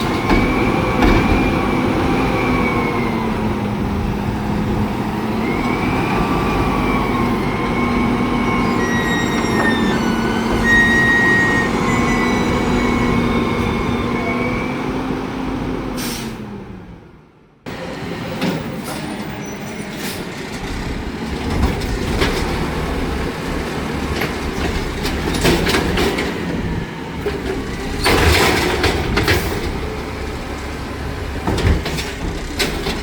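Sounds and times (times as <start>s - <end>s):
garbage truck whine: 0.0s - 33.0s
high squeals: 5.4s - 14.9s.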